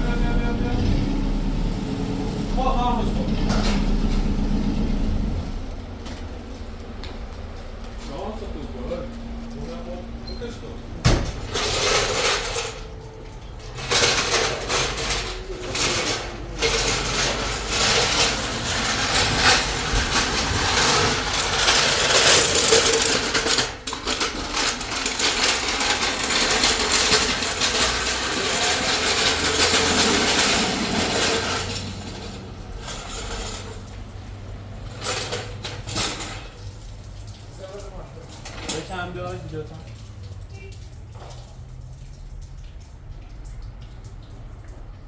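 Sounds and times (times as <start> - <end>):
hand tools clinking on metal: 11.5 - 34.0.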